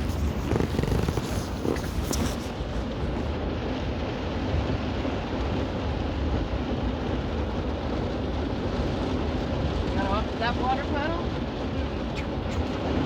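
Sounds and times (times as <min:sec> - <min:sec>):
car engine running: 0:00.0 - 0:04.2
heavy rain on a car: 0:00.0 - 0:13.0.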